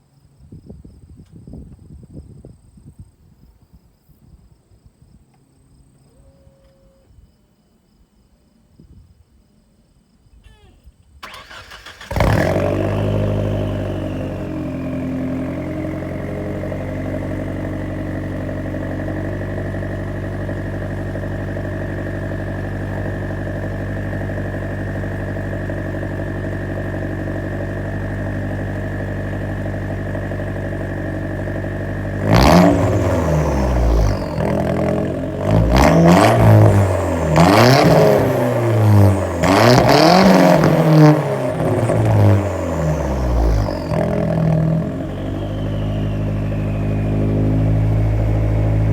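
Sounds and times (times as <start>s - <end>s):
car engine starting and idling: 10.4s - 48.9s
engine revving: 11.2s - 48.9s
high whine: 43.0s - 48.9s.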